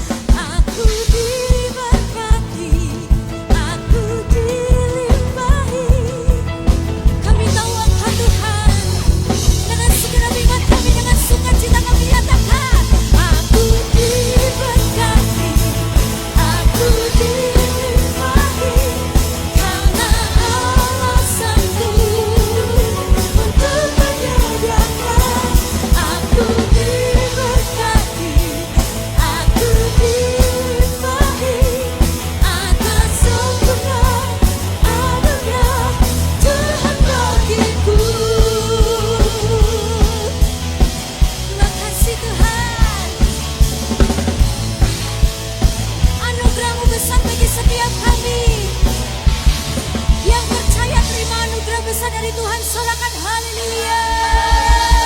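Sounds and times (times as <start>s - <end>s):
drum-kit beat: 0.0s - 51.4s, 53.8s - 55.0s
band playing upbeat song: 0.0s - 55.0s
voices singing: 7.4s - 40.5s, 50.3s - 55.0s.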